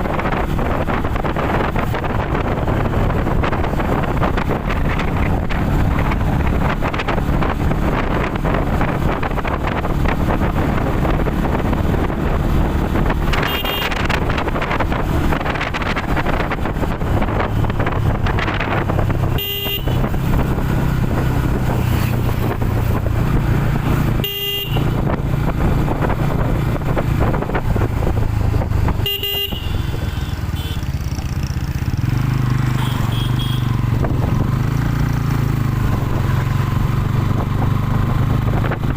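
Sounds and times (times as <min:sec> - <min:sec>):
motorcycle engine running: 0:00.0 - 0:38.9
wind noise on microphone: 0:00.0 - 0:38.9
horn beeps: 0:13.4 - 0:14.0, 0:19.3 - 0:20.1, 0:24.2 - 0:25.0, 0:29.0 - 0:30.8, 0:32.8 - 0:33.7.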